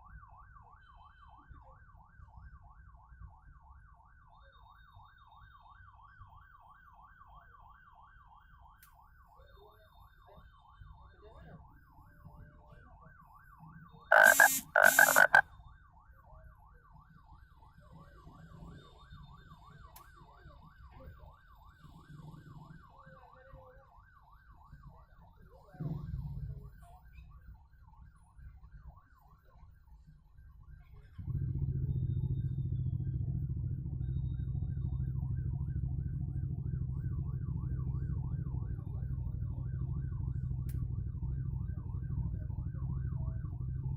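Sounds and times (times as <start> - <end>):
emergency siren yelping: 14.1 - 15.4.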